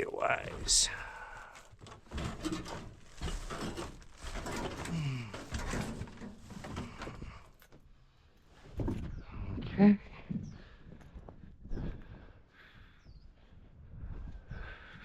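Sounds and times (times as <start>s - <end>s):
rummaging knocks and rustles: 0.4s - 7.8s.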